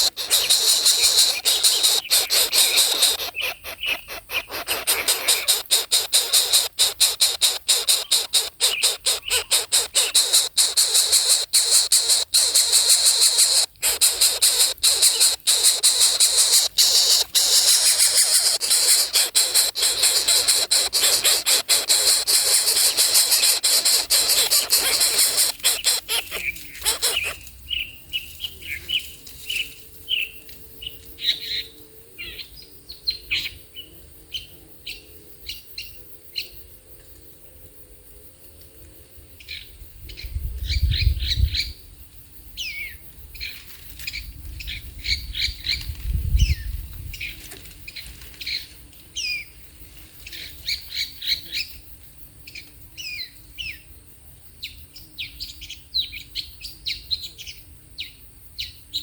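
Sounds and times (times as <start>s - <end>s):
birds chirping: 0.0s - 30.3s.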